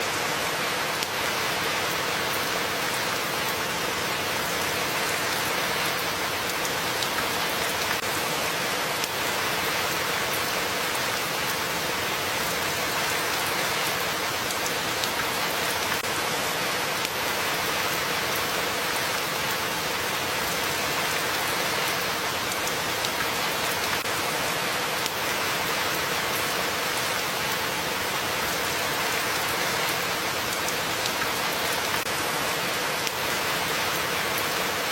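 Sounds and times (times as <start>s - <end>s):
steady rain hiss: 0.0s - 34.9s
raindrop ticks: 6.4s - 8.1s, 14.4s - 16.1s, 21.8s - 24.1s, 29.9s - 32.1s.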